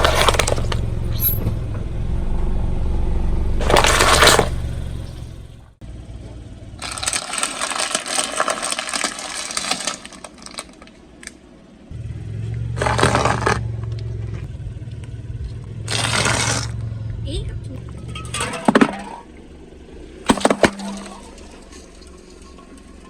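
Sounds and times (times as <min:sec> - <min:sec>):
tyre crunching something: 0:00.0 - 0:01.6, 0:03.6 - 0:05.2, 0:06.8 - 0:11.4, 0:12.8 - 0:14.5, 0:15.9 - 0:16.9
car engine idling: 0:00.0 - 0:23.0.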